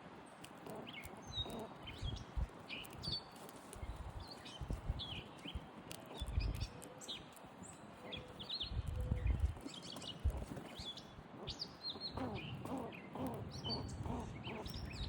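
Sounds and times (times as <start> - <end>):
small birds chirping: 0.2 - 15.0.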